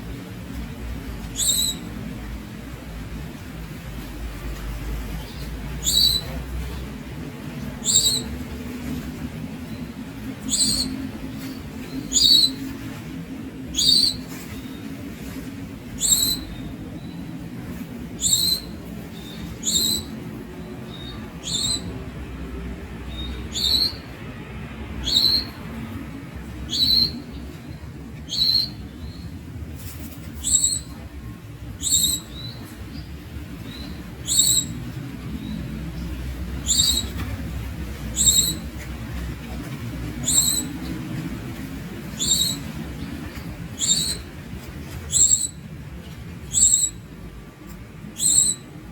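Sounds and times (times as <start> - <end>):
low background hum: 0.0 - 48.9
bird high sharp calls: 1.4 - 1.9, 5.3 - 6.4, 7.8 - 8.3, 10.4 - 11.0, 11.8 - 12.7, 13.8 - 14.8, 15.9 - 17.2, 18.2 - 20.2, 20.9 - 21.9, 28.2 - 29.3, 30.3 - 31.0, 31.8 - 32.7, 33.7 - 34.8, 36.6 - 37.2, 38.1 - 38.7, 40.2 - 40.8, 42.1 - 44.3, 45.0 - 45.6, 46.4 - 47.0, 48.2 - 48.7.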